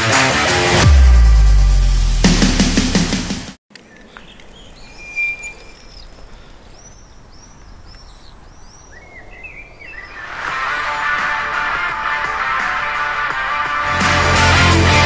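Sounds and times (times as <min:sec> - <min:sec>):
music: 0:00.0 - 0:03.6, 0:10.2 - 0:15.0
small birds chirping: 0:03.7 - 0:10.4
faint outdoor background noise: 0:03.7 - 0:12.0
steady high whistle: 0:04.9 - 0:05.8.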